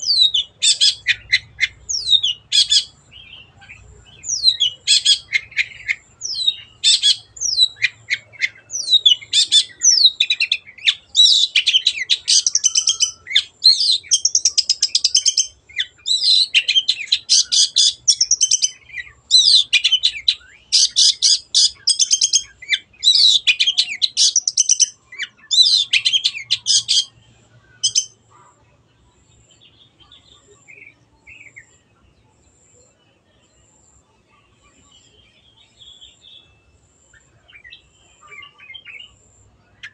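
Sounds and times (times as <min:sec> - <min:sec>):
faint bird calls: 0:00.0 - 0:39.9
shrike chattering song: 0:00.1 - 0:27.2.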